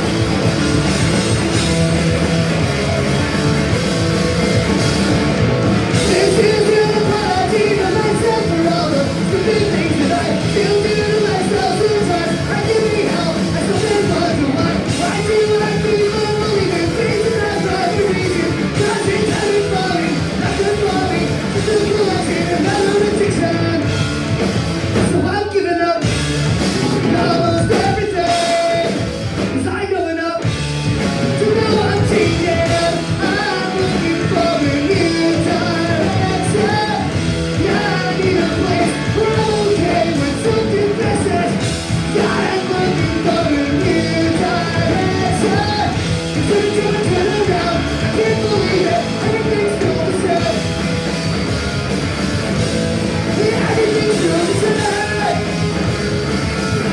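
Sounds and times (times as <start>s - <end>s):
punk rock band playing: 0.0s - 56.9s
sung and shouted vocals: 5.9s - 23.9s, 31.4s - 50.8s, 53.2s - 55.9s.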